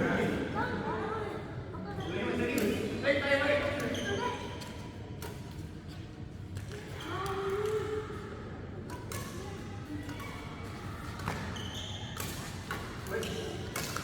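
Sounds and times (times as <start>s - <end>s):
shoes squeaking on court: 11.2s - 14.0s.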